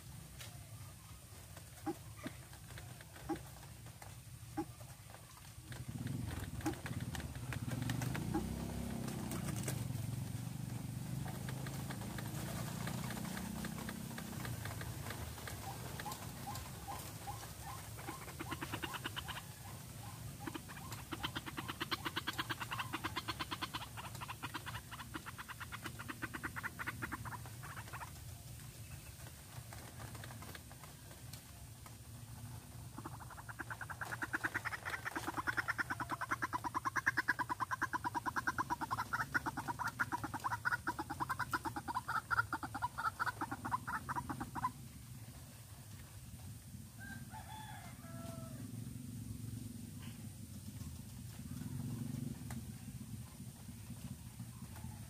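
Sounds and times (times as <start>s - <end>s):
birds calling rapid repeated notes: 10.8s - 28.2s, 32.8s - 44.8s.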